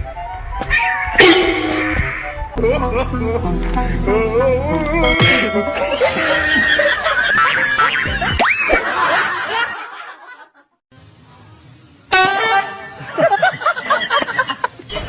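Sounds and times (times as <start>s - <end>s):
music: 0.0s - 8.5s, 10.9s - 13.4s
people laughing and snickering: 2.6s - 4.6s, 5.2s - 10.7s, 12.9s - 15.0s.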